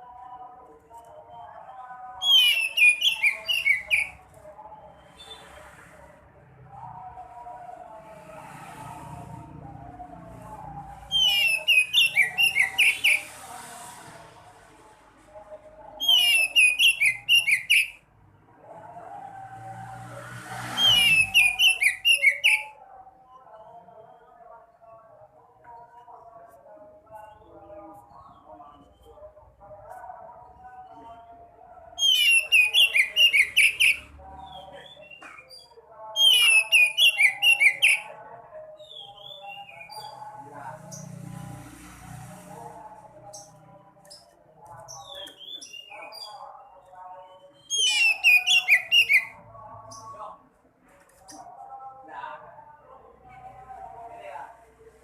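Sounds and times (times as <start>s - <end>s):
background chatter: 0.0s - 21.1s
songbird singing whistled notes: 1.0s - 4.2s, 11.0s - 13.2s, 16.0s - 18.0s, 20.8s - 22.8s, 32.0s - 38.1s, 38.8s - 40.2s, 43.4s - 46.4s, 47.2s - 50.1s.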